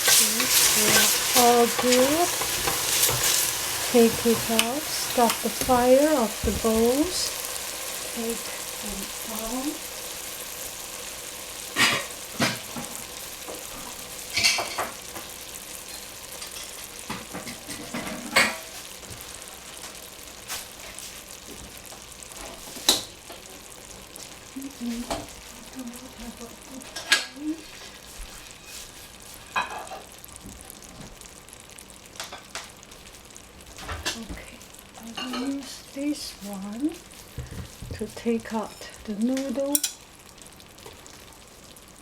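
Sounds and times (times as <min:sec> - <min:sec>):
utensils clinking against pan: 0:00.0 - 0:07.3, 0:14.3 - 0:15.2, 0:15.9 - 0:18.7, 0:39.7 - 0:40.0
food sizzling in a pan: 0:00.0 - 0:42.0.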